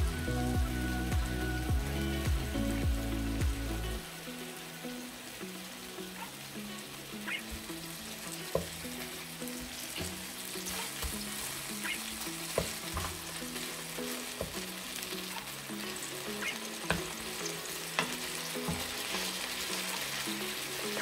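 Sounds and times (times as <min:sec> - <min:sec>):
patties sizzling in oil: 0:00.0 - 0:21.0
soft background music: 0:00.0 - 0:21.0
spatula tapping pan: 0:08.5 - 0:08.8, 0:12.4 - 0:13.3, 0:14.2 - 0:14.7, 0:16.6 - 0:17.3, 0:17.9 - 0:19.7.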